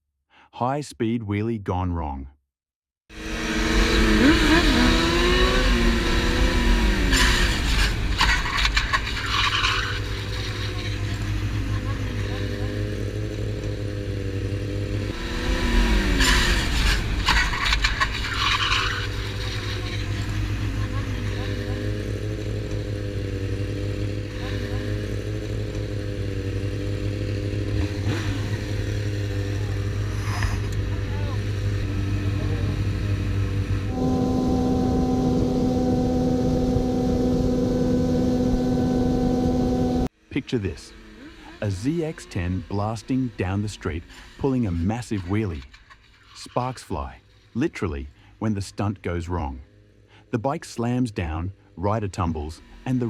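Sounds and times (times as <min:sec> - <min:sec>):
motorcycle engine revving: 0:03.1 - 0:44.8.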